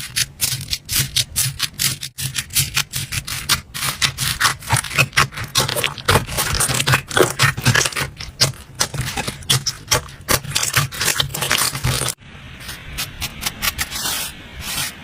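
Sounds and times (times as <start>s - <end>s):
slime crackling and popping: 3.0s - 12.2s.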